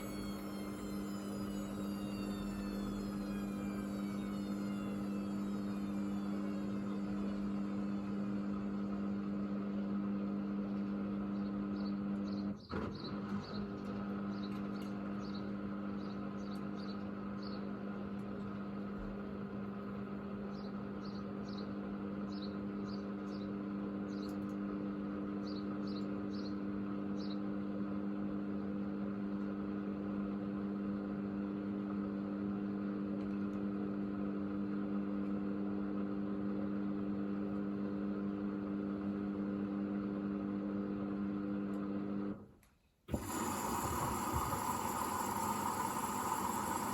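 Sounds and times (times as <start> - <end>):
drain pump humming: 0.0 - 11.2, 43.1 - 46.9
drum motor whine winding down: 0.0 - 21.7, 43.1 - 46.9.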